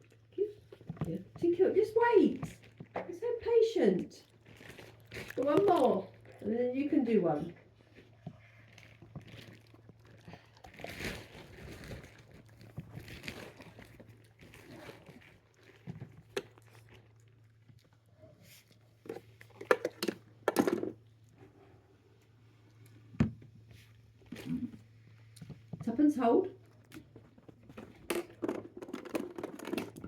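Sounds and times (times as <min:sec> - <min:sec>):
packaging crinkling: 0:10.6 - 0:16.6.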